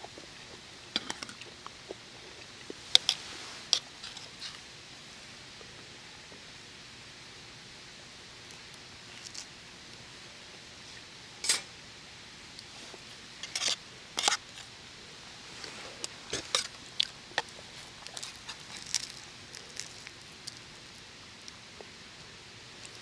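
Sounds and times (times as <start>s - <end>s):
cookware and utensils clinking: 11.4s - 11.7s.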